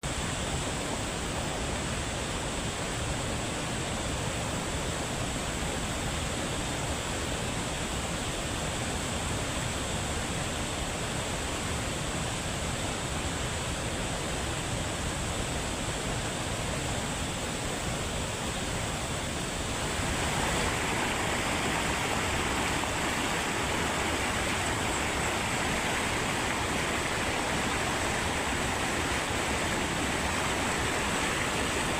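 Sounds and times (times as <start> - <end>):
waterfall rushing: 0.1 - 31.9.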